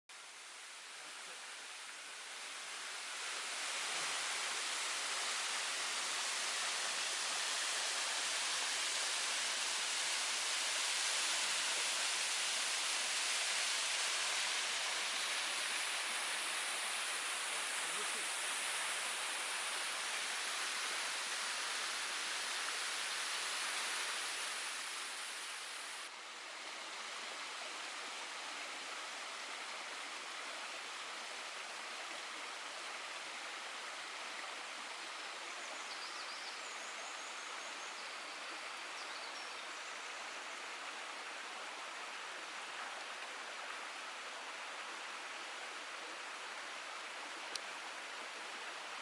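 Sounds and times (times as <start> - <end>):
waterfall rushing and splashing: 0.3 - 34.9.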